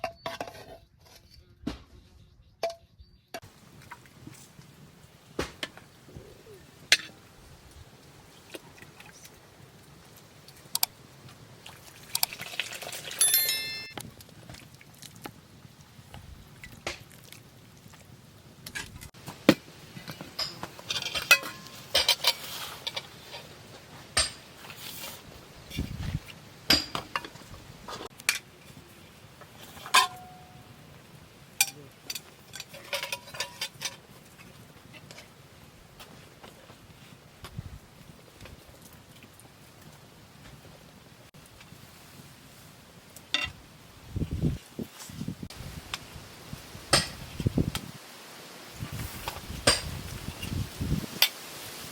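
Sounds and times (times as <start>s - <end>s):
dishes and utensils clinking: 13.1s - 14.0s, 20.1s - 23.5s, 29.7s - 30.6s, 31.6s - 34.0s.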